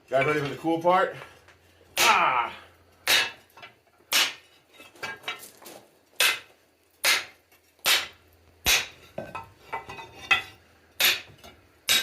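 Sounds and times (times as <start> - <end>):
hammer striking hot steel on anvil: 3.0 - 4.5, 6.2 - 12.0.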